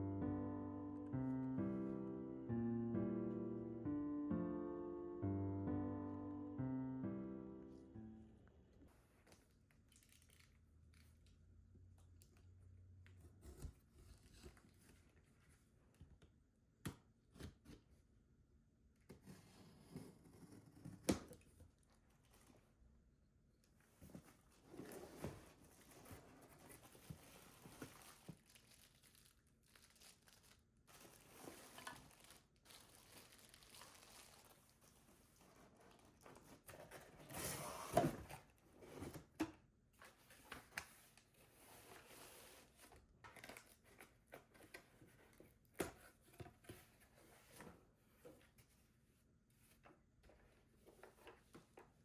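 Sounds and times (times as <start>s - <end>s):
soft rustling and crinkling: 19.2s - 22.9s, 23.6s - 37.4s.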